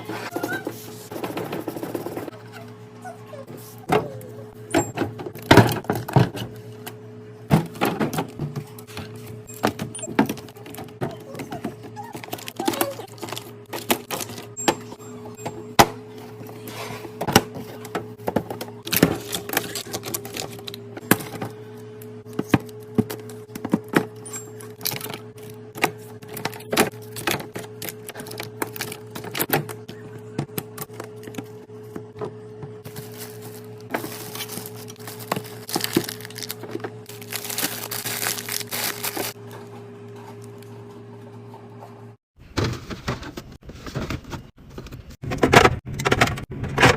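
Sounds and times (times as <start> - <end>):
packaging rustling: 12.2 - 14.5, 18.9 - 21.3, 26.3 - 29.4, 32.9 - 39.4.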